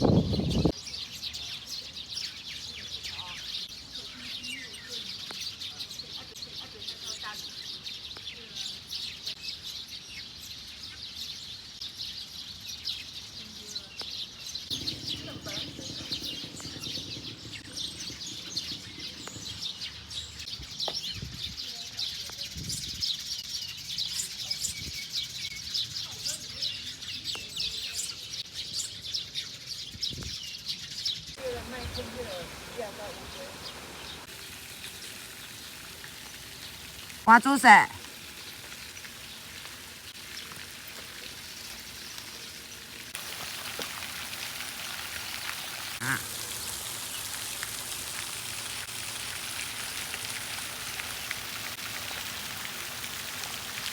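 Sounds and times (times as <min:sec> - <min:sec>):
small birds chirping: 0:00.0 - 0:53.9
rain pattering: 0:14.7 - 0:20.4, 0:31.4 - 0:53.9.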